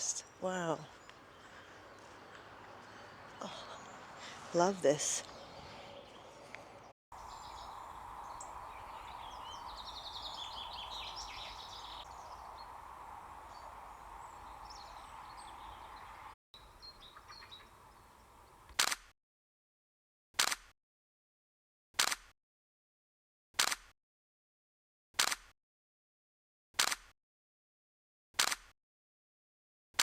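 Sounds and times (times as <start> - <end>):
songbirds chirping: 0.0 - 18.7.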